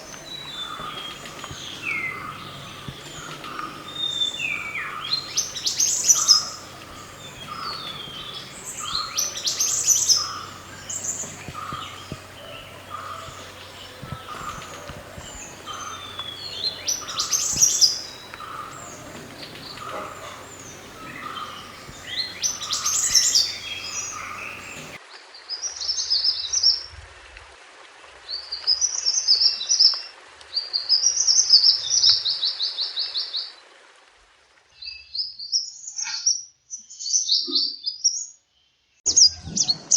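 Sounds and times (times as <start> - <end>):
bird chirping and trilling: 0.0 - 25.0
other birds calling: 0.0 - 25.0.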